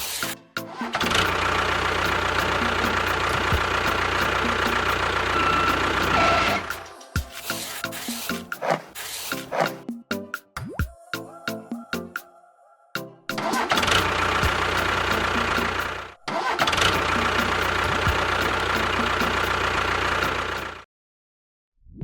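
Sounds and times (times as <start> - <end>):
engine starting and running: 0.7 - 9.8, 13.4 - 20.9.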